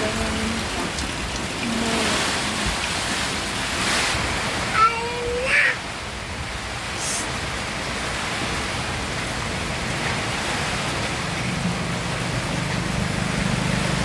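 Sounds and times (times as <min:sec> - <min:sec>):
heavy rain and wind: 0:00.0 - 0:14.0
low engine hum: 0:07.9 - 0:14.0.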